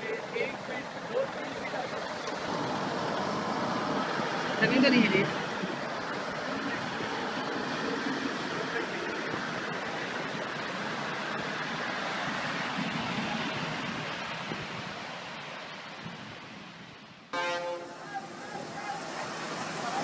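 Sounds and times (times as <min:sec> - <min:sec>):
water rushing: 0:00.0 - 0:16.6, 0:17.4 - 0:20.0.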